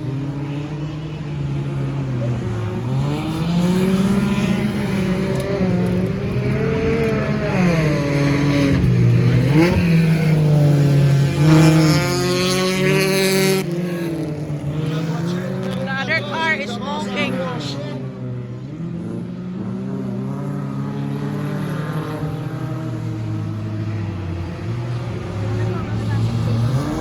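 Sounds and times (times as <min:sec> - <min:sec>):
stock car engines racing: 0:00.0 - 0:27.0.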